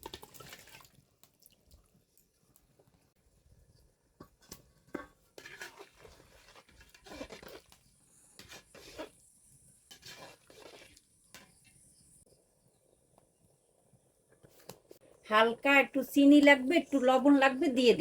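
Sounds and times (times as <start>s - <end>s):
utensil scraping cooking pot: 3.8s - 12.2s.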